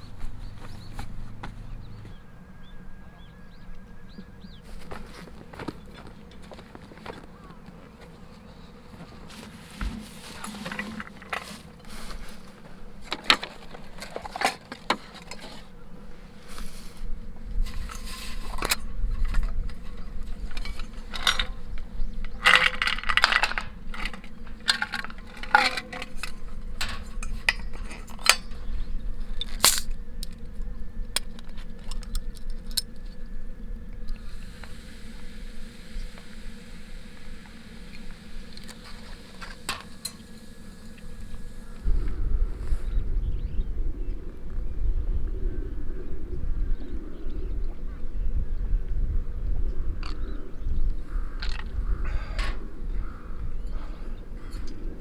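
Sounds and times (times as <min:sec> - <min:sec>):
faint steady hum: 0:00.0 - 0:55.0
camp gear clicking and clinking: 0:09.2 - 0:15.8, 0:17.7 - 0:28.6, 0:29.4 - 0:30.5, 0:31.1 - 0:33.2.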